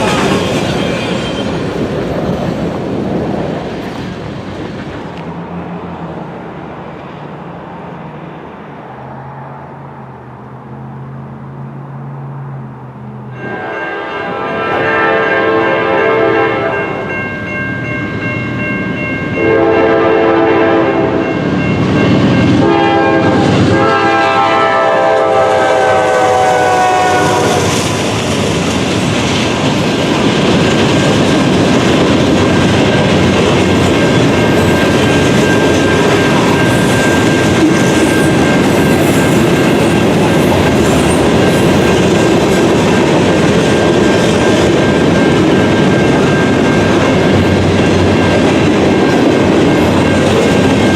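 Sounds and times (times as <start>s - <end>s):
train wheels clattering: 0.0s - 5.3s, 26.2s - 50.9s
locomotive air horn: 13.4s - 16.9s, 19.4s - 21.2s, 22.6s - 27.9s.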